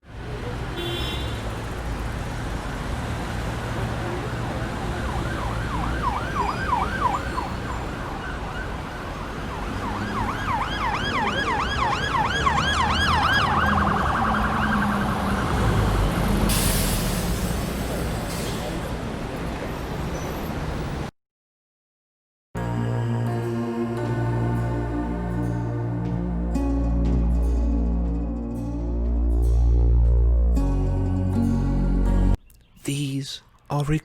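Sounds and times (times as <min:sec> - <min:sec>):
siren-like yelp wailing: 0:04.8 - 0:16.2.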